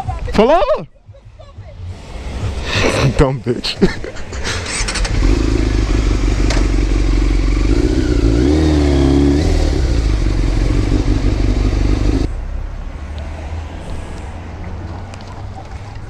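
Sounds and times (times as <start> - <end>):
motorcycle engine running: 4.6 - 12.3.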